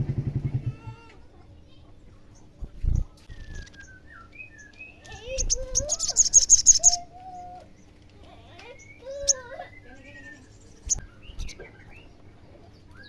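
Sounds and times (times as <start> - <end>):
bird singing high chirps: 3.0 - 7.9, 8.6 - 12.2.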